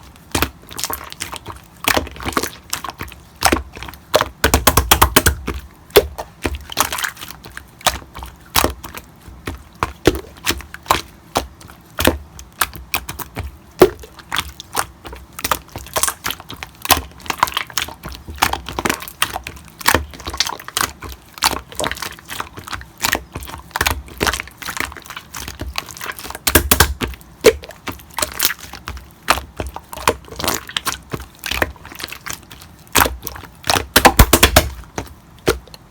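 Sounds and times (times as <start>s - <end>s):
slime squished by hand: 0.1s - 35.9s
sharp clicks and pops: 26.4s - 27.6s, 33.7s - 35.9s.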